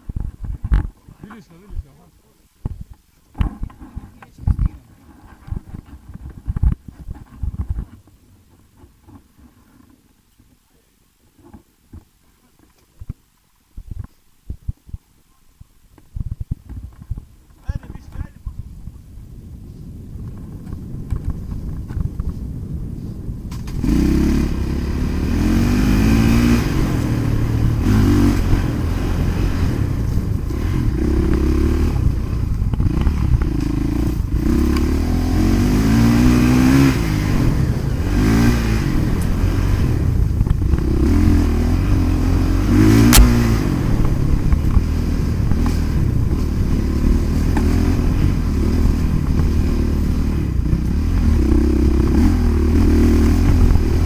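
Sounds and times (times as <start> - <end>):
dirt bike engines revving: 23.8 - 54.0
sharp knock: 43.0 - 43.6.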